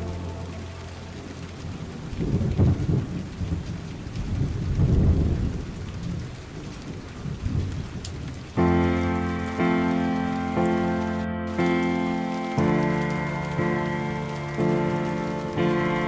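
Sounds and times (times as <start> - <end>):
rolling thunder: 0.0 - 8.7
steady rain: 0.0 - 16.0.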